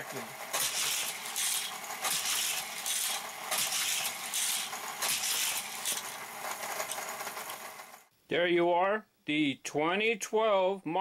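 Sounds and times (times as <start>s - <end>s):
toy car rattling through booster: 0.0s - 8.1s
booster wheels whirring: 0.2s - 8.1s.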